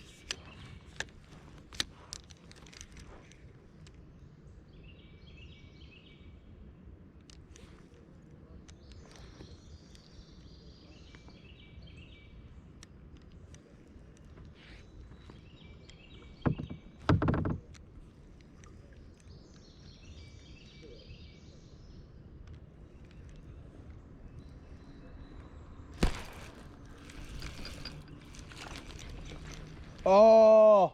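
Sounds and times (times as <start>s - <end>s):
birds singing: 0.0s - 1.6s, 3.9s - 6.9s, 8.5s - 30.9s
low outdoor background: 0.0s - 30.9s
thumps: 16.4s - 17.8s, 26.0s - 30.1s.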